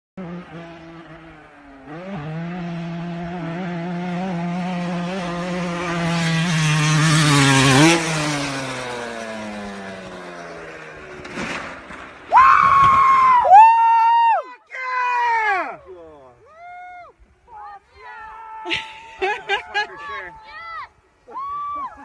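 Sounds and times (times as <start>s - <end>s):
motorcycle engine passing: 0.2s - 13.4s.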